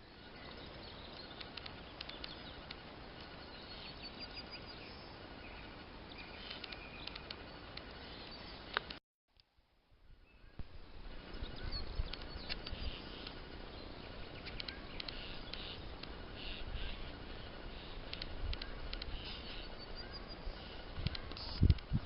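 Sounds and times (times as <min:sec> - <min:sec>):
small birds chirping and singing: 0:00.0 - 0:09.0, 0:10.2 - 0:22.0
steady low rumble: 0:09.9 - 0:22.0.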